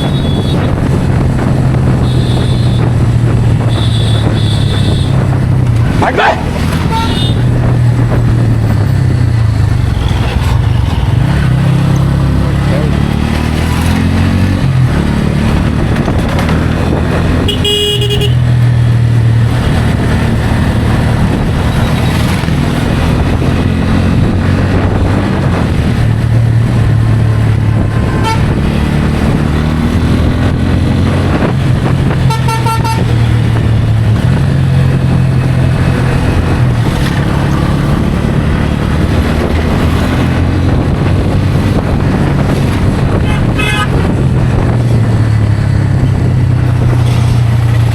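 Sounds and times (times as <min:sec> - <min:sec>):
vehicle horns honking: 0:00.0 - 0:00.7, 0:02.0 - 0:02.9, 0:03.6 - 0:05.2, 0:06.8 - 0:07.5, 0:17.4 - 0:18.5, 0:28.1 - 0:28.6, 0:32.2 - 0:33.2, 0:43.1 - 0:44.2.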